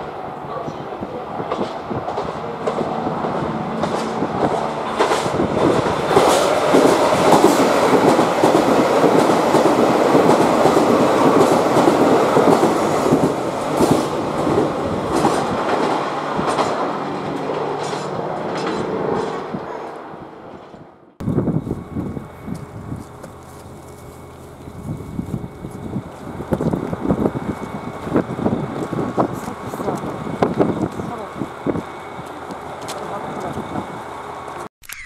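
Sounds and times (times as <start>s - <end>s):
diesel train engines running: 0.0s - 34.7s
wheels clattering over rail joints: 1.4s - 21.1s.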